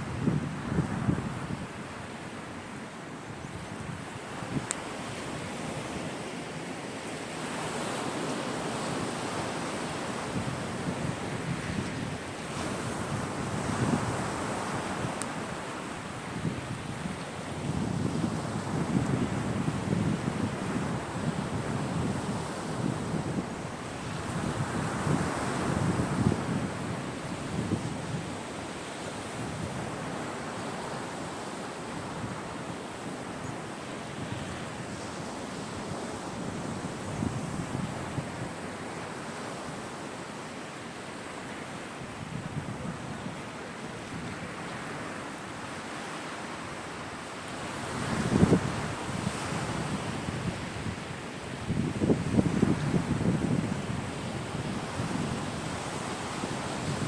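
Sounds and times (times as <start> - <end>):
sea waves breaking on shore: 0.0 - 57.0
faint sharp click: 4.6 - 4.8.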